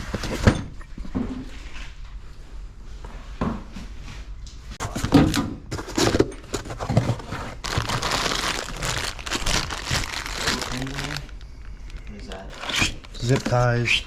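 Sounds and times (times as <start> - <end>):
parts knocking and clattering: 4.8 - 8.0
plastic packaging crinkling: 5.9 - 14.0.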